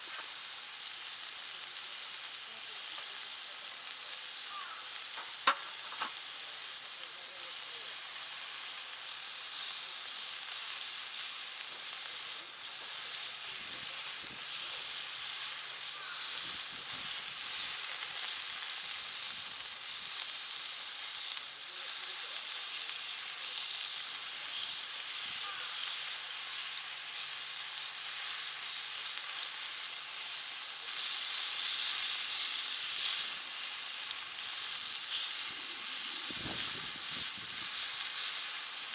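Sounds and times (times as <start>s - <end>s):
meat sizzling on grill pan: 0.0s - 38.9s
grease pops: 4.7s - 6.2s.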